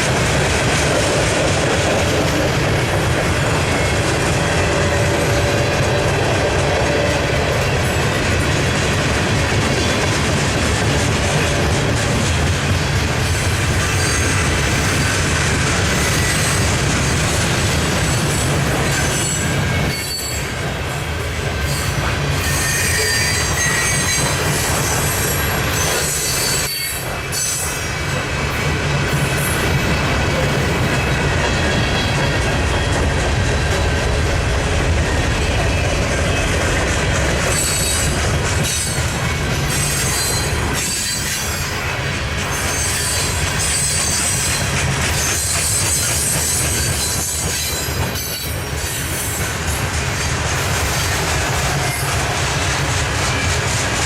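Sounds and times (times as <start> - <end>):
freight train rumbling past: 0.0 - 54.0
train wheels squealing: 13.4 - 15.2, 15.9 - 16.8, 18.0 - 28.0, 37.4 - 53.7.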